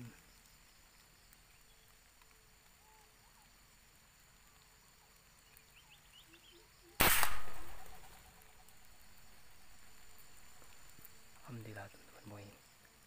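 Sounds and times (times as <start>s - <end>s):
gunshot: 7.0s - 8.2s.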